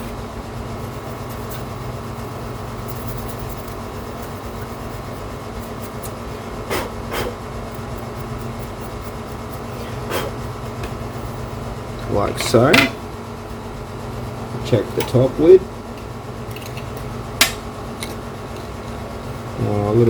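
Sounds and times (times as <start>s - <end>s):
brush scratching and ticking: 0.0s - 12.7s
steady machine hum: 0.0s - 20.0s.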